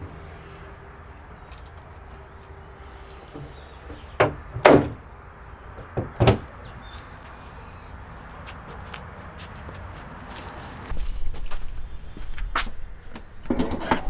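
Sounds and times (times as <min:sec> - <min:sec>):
short knocks: 0:05.8 - 0:06.6.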